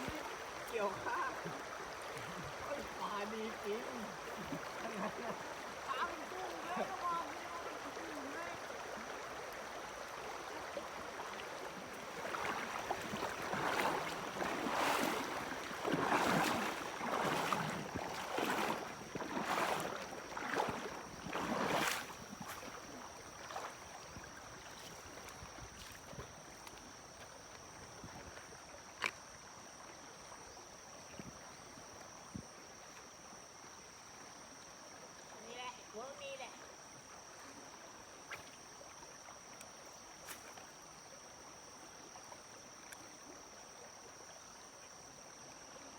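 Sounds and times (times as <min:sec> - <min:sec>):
water splashing: 0:00.0 - 0:26.9.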